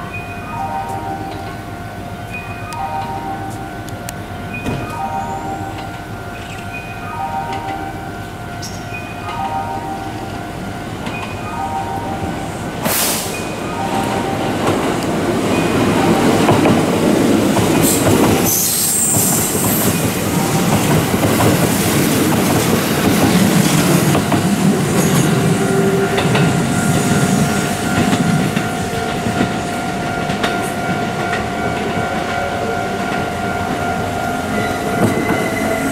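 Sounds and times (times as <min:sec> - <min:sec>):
train wheels clattering: 0:12.8 - 0:35.9.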